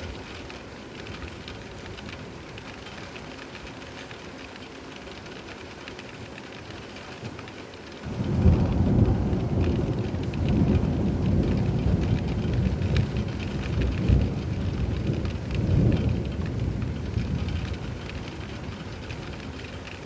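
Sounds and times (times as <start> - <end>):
steady rainfall: 0.0 - 20.0
thunder rumble: 8.0 - 19.9.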